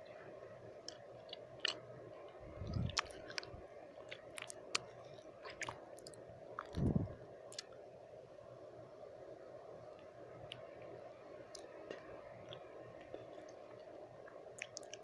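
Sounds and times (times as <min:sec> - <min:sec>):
faint background noise: 0:00.0 - 0:15.0
tongue and lip clicks: 0:02.6 - 0:07.8, 0:14.6 - 0:15.0.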